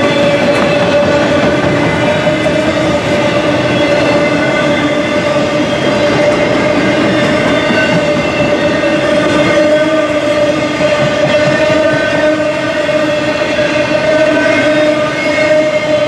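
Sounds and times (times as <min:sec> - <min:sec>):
freight cars rumbling on rails: 0:00.0 - 0:16.0.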